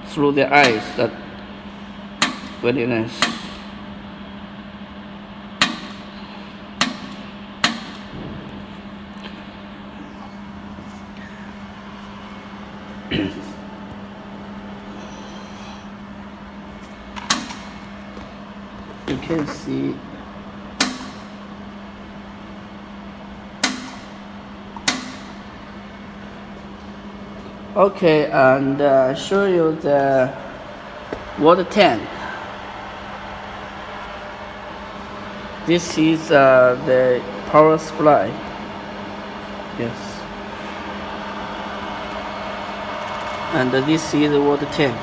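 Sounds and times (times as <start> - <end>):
machine low hum: 0.0 - 45.0
laser welder snaps: 6.8 - 8.1, 17.2 - 17.8, 20.8 - 21.3, 23.6 - 24.1, 24.8 - 25.4.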